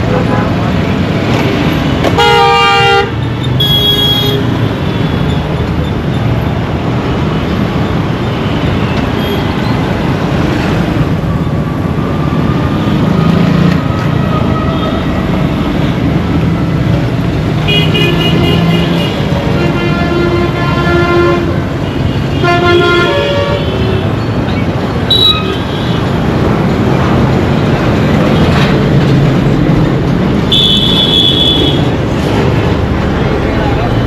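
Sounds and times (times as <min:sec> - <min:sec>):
road traffic: 0:00.0 - 0:34.0
vehicle horns: 0:02.0 - 0:05.1, 0:17.6 - 0:24.2, 0:30.5 - 0:32.0.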